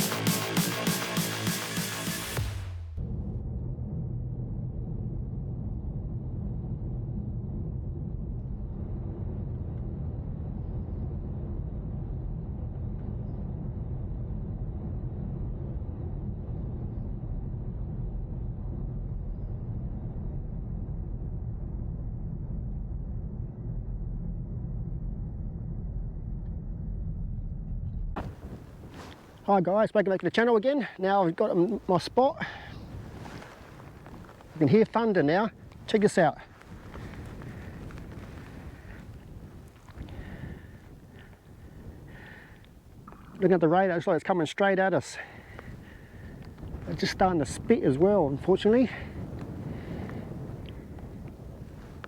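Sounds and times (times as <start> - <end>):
car driving rumble: 28.2 - 29.7.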